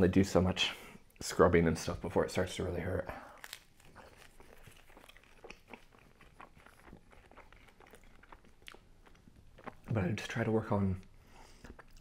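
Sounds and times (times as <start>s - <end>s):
chewing crispy pizza: 2.4s - 12.0s.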